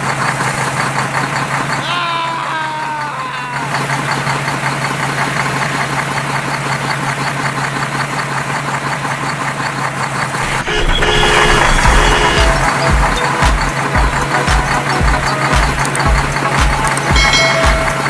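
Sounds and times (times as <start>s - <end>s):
vehicle engine idling: 0.0s - 18.0s
deep thumping with held tones: 10.7s - 18.0s.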